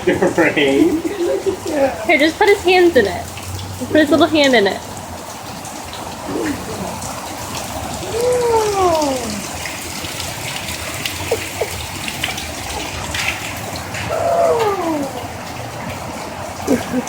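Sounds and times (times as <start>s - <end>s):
rain pouring and splashing: 0.0s - 17.0s
baby vocalizing: 6.3s - 7.0s, 8.0s - 9.6s, 14.0s - 15.6s.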